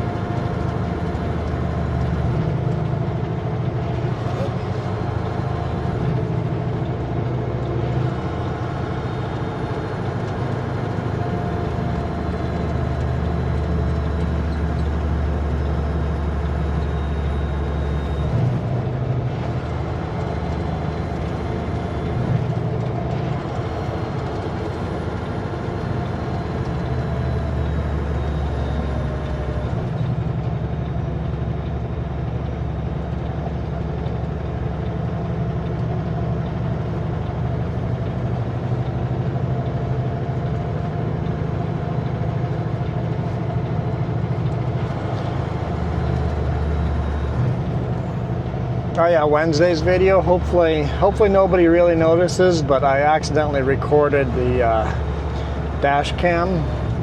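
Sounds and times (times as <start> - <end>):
truck diesel engine drone: 0.0 - 57.0.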